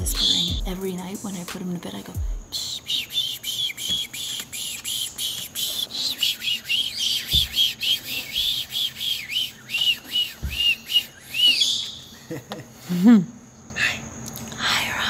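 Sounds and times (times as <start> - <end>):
parrot whispering psh: 0.0 - 1.4, 2.4 - 11.6.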